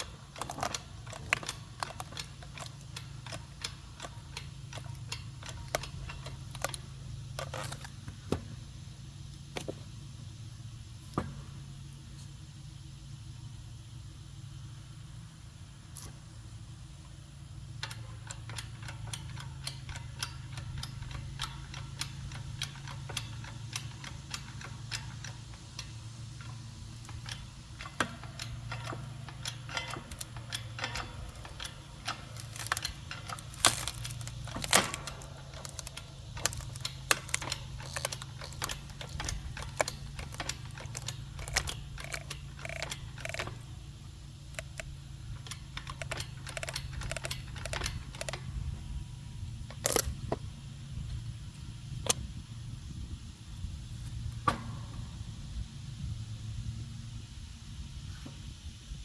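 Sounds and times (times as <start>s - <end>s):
steady low hum: 0.0s - 59.0s
log cracking in wood splitter: 28.0s - 43.5s.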